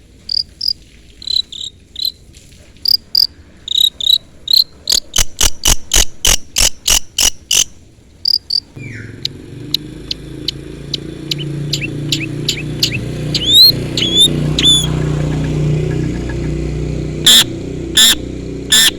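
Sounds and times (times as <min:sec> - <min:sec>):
shrike calling: 0:00.3 - 0:02.2, 0:08.3 - 0:18.9.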